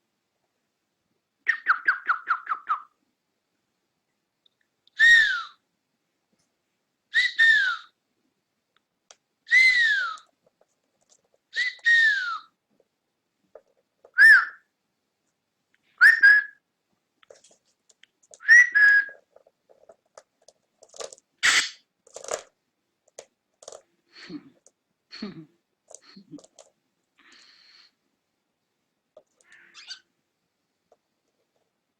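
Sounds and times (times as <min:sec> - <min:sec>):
cockatiel whistling: 0:01.5 - 0:02.9, 0:05.0 - 0:05.6, 0:07.1 - 0:07.9, 0:09.5 - 0:10.3, 0:11.5 - 0:12.5, 0:14.1 - 0:14.6, 0:16.0 - 0:16.6, 0:18.4 - 0:19.2.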